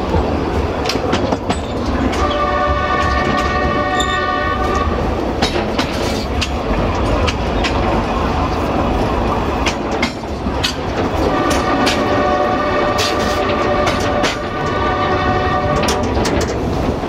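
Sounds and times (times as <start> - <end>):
train rumble: 0.0 - 17.0
wheels clacking over rail joints: 0.0 - 17.0
train horn: 2.0 - 5.1, 11.2 - 16.4.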